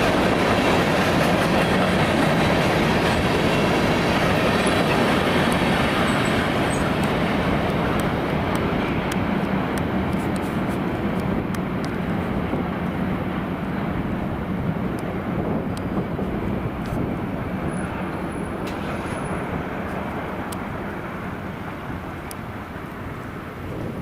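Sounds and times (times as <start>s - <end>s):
train rolling on rails: 0.0s - 24.0s
light clicks of wheels: 6.7s - 12.3s, 15.7s - 16.0s, 17.8s - 21.0s, 22.0s - 23.8s.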